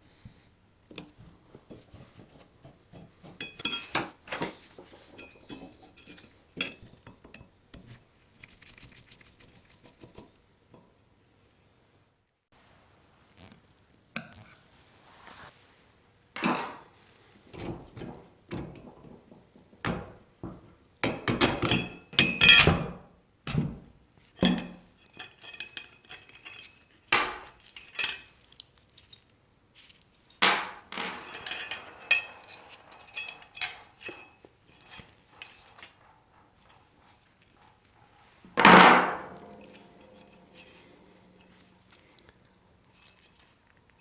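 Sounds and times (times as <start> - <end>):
metal fan parts knocking and clinking: 2.3 - 7.6, 17.5 - 22.9, 24.4 - 28.4, 30.3 - 42.2.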